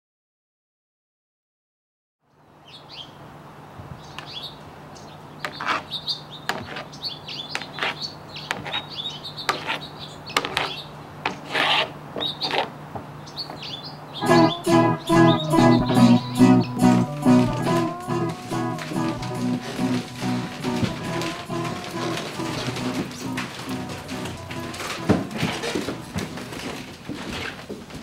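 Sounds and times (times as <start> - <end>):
small birds chirping: 2.6 - 3.2, 4.0 - 11.1, 12.2 - 17.0.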